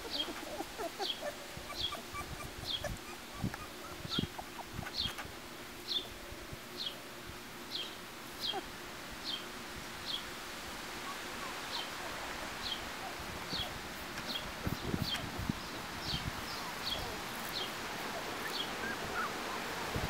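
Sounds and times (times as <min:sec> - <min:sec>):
bird chirping: 0:00.0 - 0:05.2, 0:14.3 - 0:17.8.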